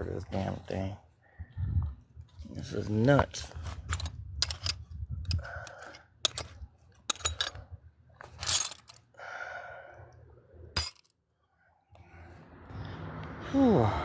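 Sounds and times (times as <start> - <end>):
heavy breaths and sighs: 5.2 - 6.2, 9.1 - 10.7, 11.6 - 14.0.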